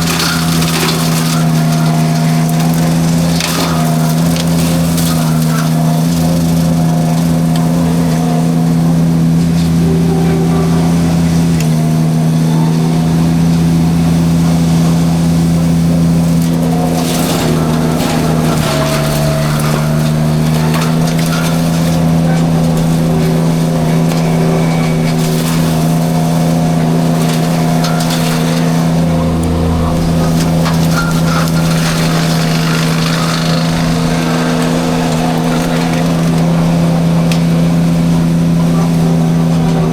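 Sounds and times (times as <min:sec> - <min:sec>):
engine running at high throttle: 0:00.0 - 0:39.9
mulcher splintering brush: 0:00.0 - 0:39.9.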